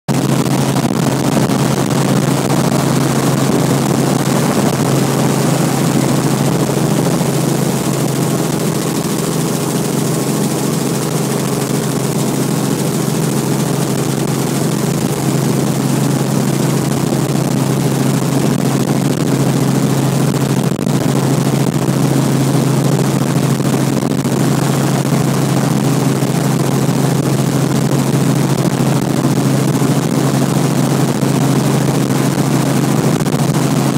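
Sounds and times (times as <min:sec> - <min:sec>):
rushing noise: 0:00.1 - 0:14.2
helicopter engine and rotor hum: 0:00.1 - 0:33.9.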